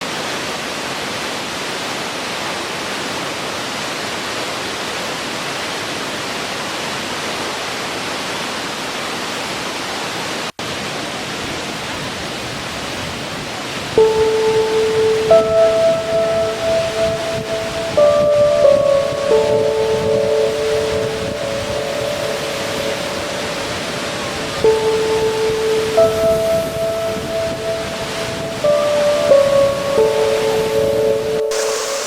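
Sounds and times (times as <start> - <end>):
waterfall roaring: 0.0 - 32.0
soft sustained music notes: 14.0 - 32.0.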